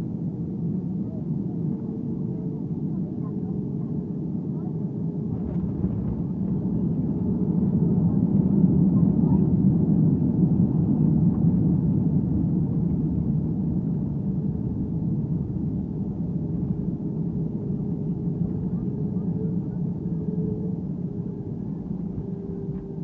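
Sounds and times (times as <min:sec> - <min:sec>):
airplane cabin rumble: 0:00.0 - 0:23.0.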